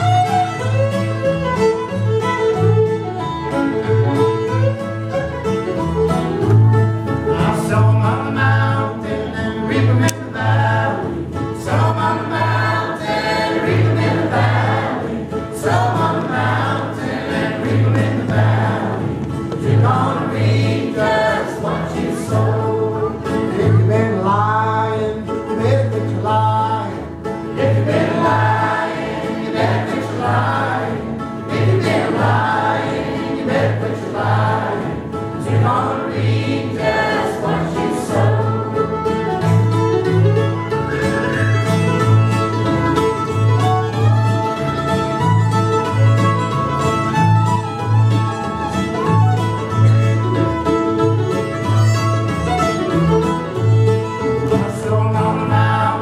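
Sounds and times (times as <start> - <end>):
plucked bass line: 0.0 - 56.0
string band playing: 0.0 - 56.0
voices singing in harmony: 7.3 - 24.4, 26.8 - 39.2, 54.5 - 56.0.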